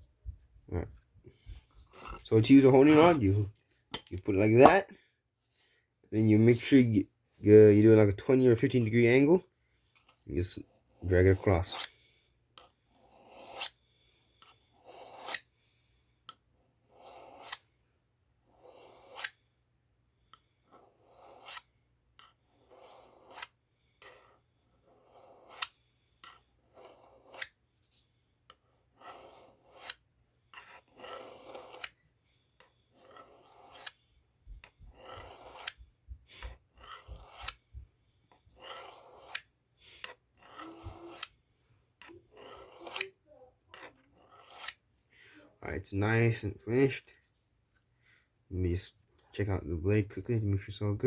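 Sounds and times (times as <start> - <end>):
knife scraping on honing rod: 1.9 - 4.2, 10.0 - 15.5, 16.9 - 17.7, 18.5 - 19.4, 20.7 - 27.6, 28.5 - 35.8, 36.4 - 37.6, 38.3 - 44.9.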